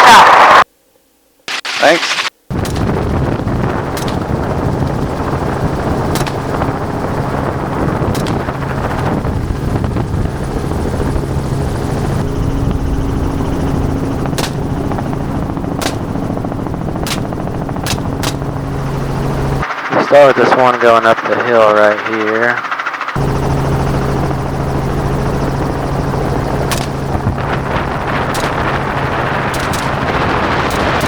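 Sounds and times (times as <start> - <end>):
helicopter rotor and engine drone: 2.5 - 31.0
short sharp clicks: 29.5 - 30.0.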